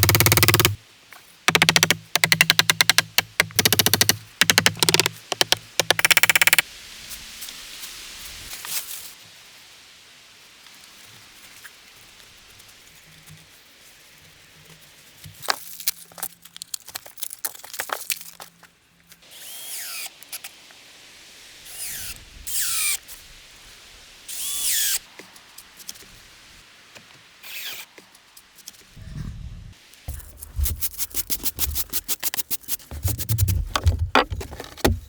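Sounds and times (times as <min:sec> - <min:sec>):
tool rasping: 0:00.0 - 0:00.8
small clicks and knocks: 0:01.5 - 0:06.6.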